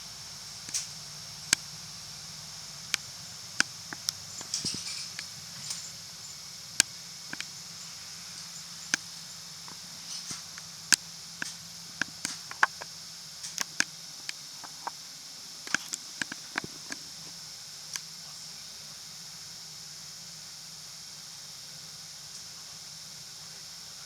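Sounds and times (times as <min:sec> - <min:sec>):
bus drivetrain hum: 0:00.0 - 0:13.5
high hiss: 0:00.0 - 0:24.0
cabin fittings rattling: 0:03.0 - 0:06.0.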